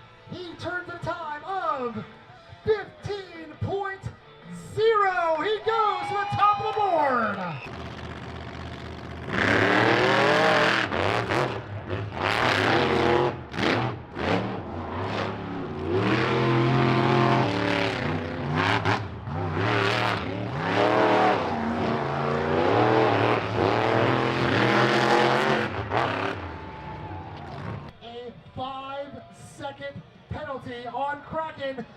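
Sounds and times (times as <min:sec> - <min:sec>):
truck engines revving hard: 0:07.6 - 0:27.9.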